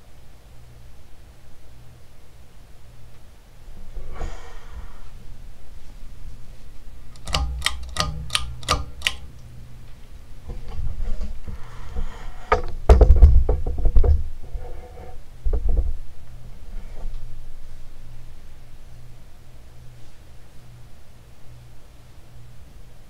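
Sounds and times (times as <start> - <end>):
ceiling fan motor hum: 0.0 - 23.0
sharp clicks: 7.1 - 9.5
low thuds and clicks: 11.9 - 14.4, 15.4 - 16.0.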